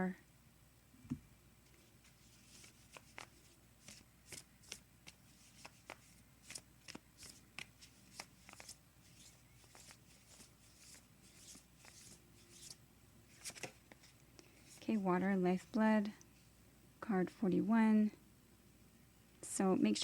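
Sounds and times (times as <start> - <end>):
cards being shuffled: 1.7 - 14.8.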